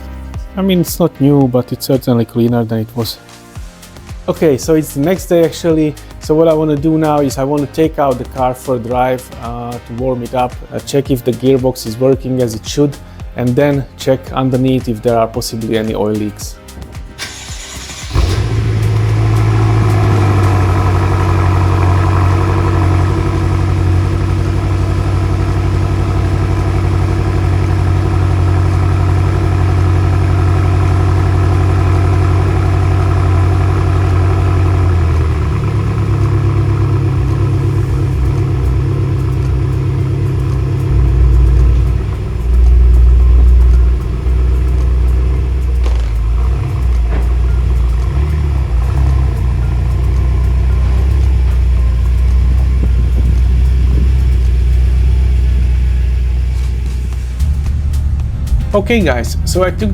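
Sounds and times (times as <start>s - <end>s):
car engine idling: 2.9s - 10.5s, 16.6s - 59.9s
low rumble: 18.1s - 59.9s.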